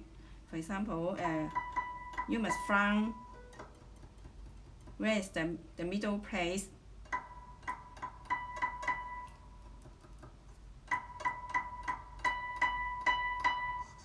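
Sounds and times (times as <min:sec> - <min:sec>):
plucked zither harmonic: 0:01.1 - 0:04.1, 0:07.1 - 0:09.6, 0:10.9 - 0:14.0.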